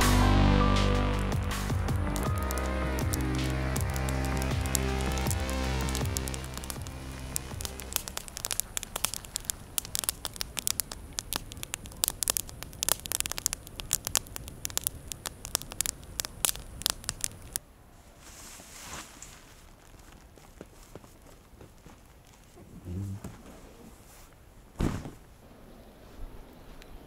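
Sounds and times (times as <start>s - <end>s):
background music: 0.0s - 8.4s
campfire crackling and popping: 0.0s - 17.6s.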